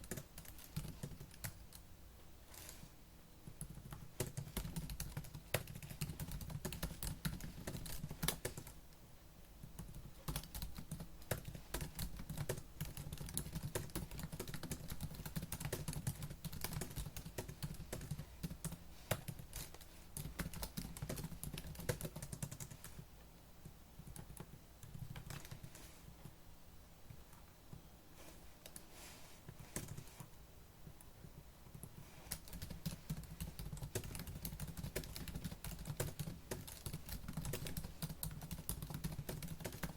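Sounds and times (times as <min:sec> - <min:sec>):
fast typing on laptop keyboard: 0:00.0 - 0:01.8, 0:03.5 - 0:08.8, 0:09.7 - 0:23.0, 0:24.0 - 0:25.8, 0:29.7 - 0:30.0, 0:31.3 - 0:39.9.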